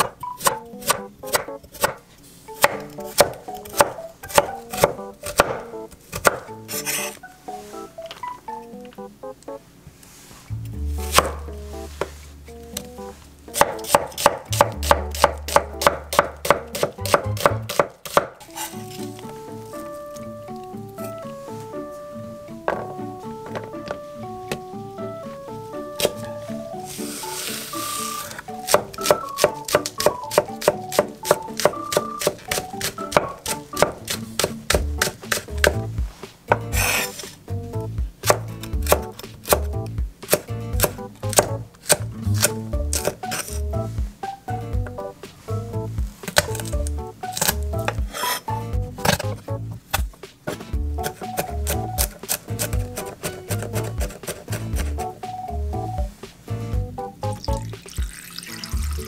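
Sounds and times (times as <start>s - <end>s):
knife chopping on wooden board: 0.0s - 2.0s, 2.6s - 7.2s, 11.1s - 12.1s, 13.6s - 18.7s, 28.7s - 35.8s, 36.5s - 37.4s, 38.2s - 43.6s, 46.2s - 48.4s, 49.0s - 55.2s
background music: 0.0s - 59.0s
blade scraping cutting board: 6.7s - 7.2s, 18.1s - 19.2s, 26.0s - 29.2s, 36.5s - 37.4s, 41.8s - 43.6s, 46.3s - 55.2s.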